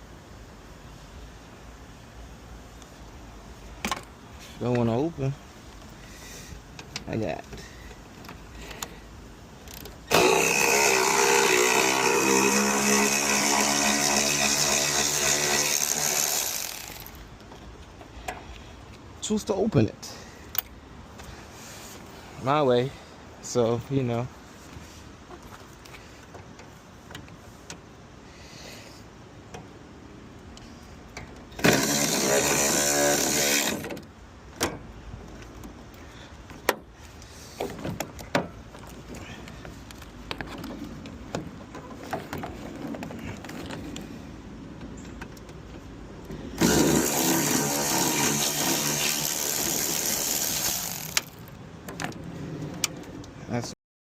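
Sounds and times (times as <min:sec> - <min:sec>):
electric motor whirring: 0:10.1 - 0:17.2, 0:31.6 - 0:33.9, 0:46.6 - 0:51.4
power tool running: 0:10.1 - 0:17.2, 0:31.6 - 0:33.9, 0:46.6 - 0:51.4.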